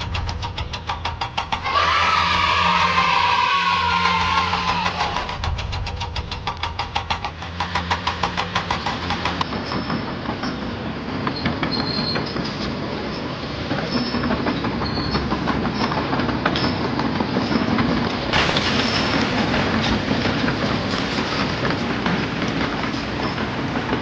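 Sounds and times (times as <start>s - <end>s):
fast regular knocking: 0.0s - 1.9s, 4.1s - 10.4s
mechanical rumbling and clatter: 0.0s - 24.0s.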